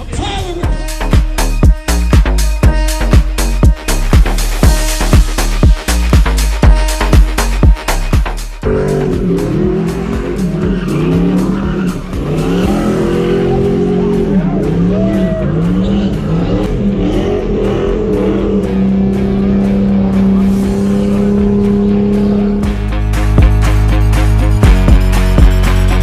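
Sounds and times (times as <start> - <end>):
tires squealing: 8.6 - 22.6
engine revving hard: 8.6 - 23.0.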